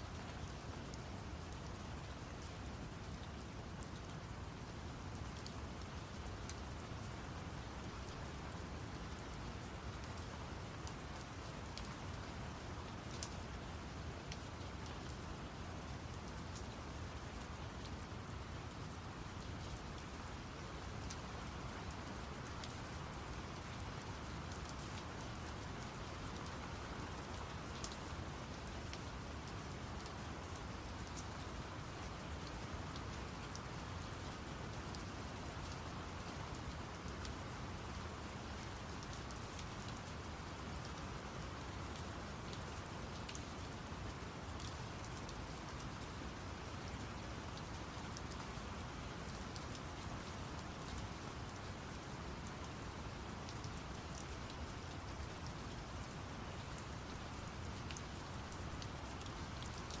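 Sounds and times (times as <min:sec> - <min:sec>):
steady rain falling: 0:00.0 - 1:00.0
raindrop ticks: 0:26.4 - 0:28.0, 0:53.6 - 1:00.0.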